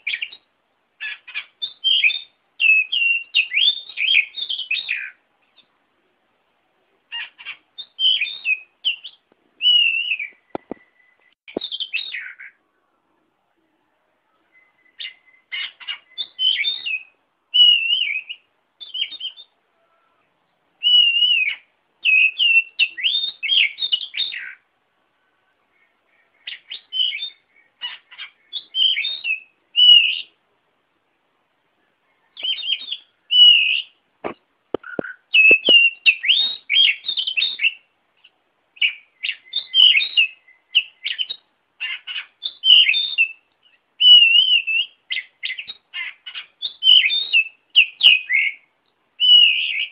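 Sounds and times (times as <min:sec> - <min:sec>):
bird singing whistled phrases: 0:00.0 - 0:05.7, 0:07.1 - 0:12.6, 0:14.3 - 0:20.2, 0:20.8 - 0:24.6, 0:26.2 - 0:30.4, 0:32.1 - 0:34.0, 0:34.8 - 0:37.9, 0:38.8 - 0:49.9
sharp clicks: 0:34.2 - 0:35.8.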